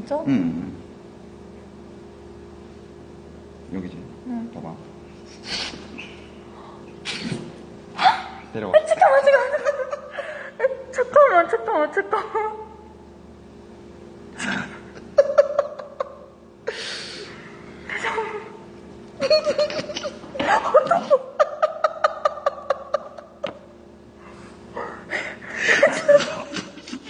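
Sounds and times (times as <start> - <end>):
woman laughing: 8.9 - 10.8, 15.1 - 16.4, 17.9 - 18.6, 19.2 - 23.4, 25.2 - 27.0.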